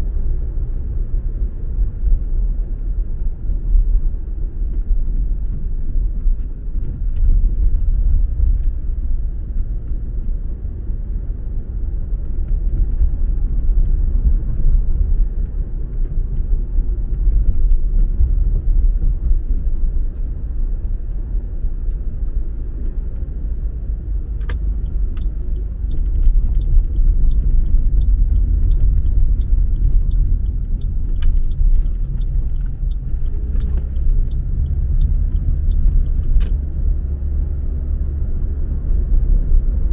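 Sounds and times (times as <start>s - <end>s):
car engine and tyres rumbling: 0.0s - 39.9s
faint evenly spaced ticks: 24.5s - 36.5s.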